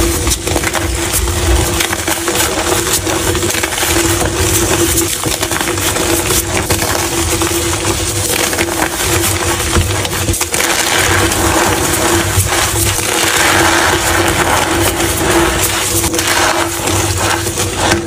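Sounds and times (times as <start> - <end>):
chalk crunching: 0.0 - 18.0.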